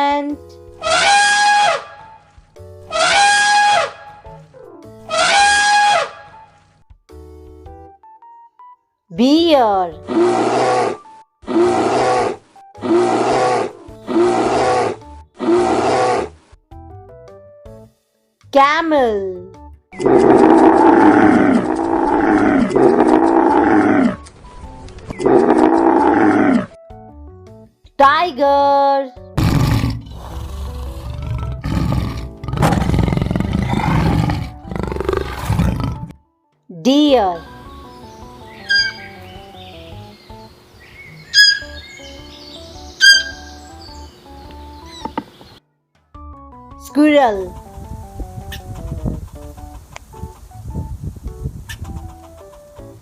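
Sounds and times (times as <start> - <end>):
background music: 0.0 - 53.0
bear roaring: 10.0 - 16.4, 20.0 - 24.2, 25.2 - 26.8, 29.4 - 36.2
soft music notes: 36.4 - 45.0.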